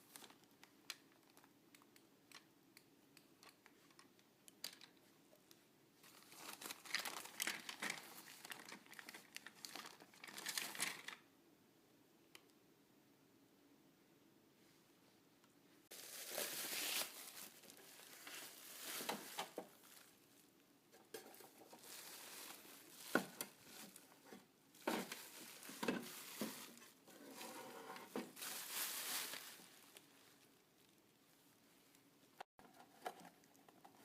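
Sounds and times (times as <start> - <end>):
packaging rustling: 6.0 - 11.2, 15.9 - 20.2, 21.2 - 30.2.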